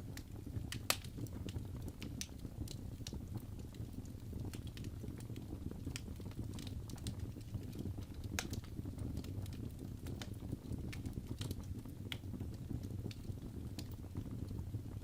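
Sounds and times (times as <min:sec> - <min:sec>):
fireplace fire crackling: 0:00.0 - 0:15.0
low rumble of flames: 0:00.0 - 0:15.0.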